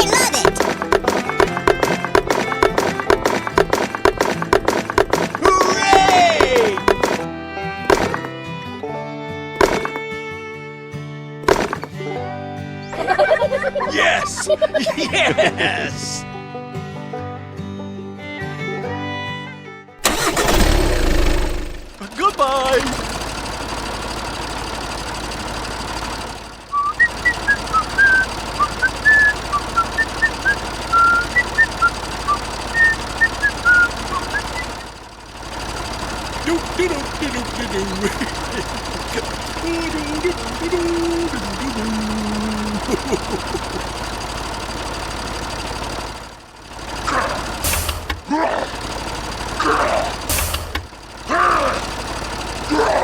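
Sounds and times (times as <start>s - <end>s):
truck engine running: 0.0s - 10.2s, 11.5s - 12.2s, 12.8s - 16.4s, 20.0s - 53.0s
short whistled chirps: 26.7s - 34.9s.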